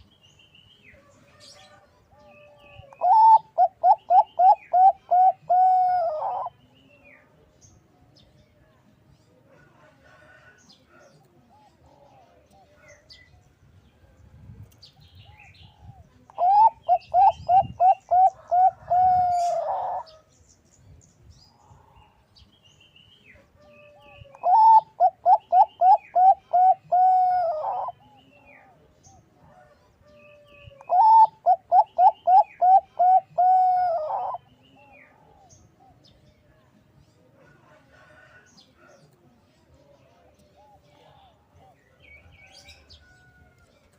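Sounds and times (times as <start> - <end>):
dove cooing: 1.6 - 6.5, 15.3 - 20.2, 23.6 - 28.8, 30.7 - 34.5.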